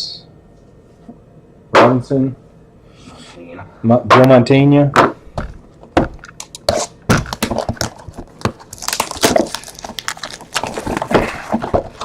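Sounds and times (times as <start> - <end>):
cards and plastic holders handled: 5.4 - 12.0.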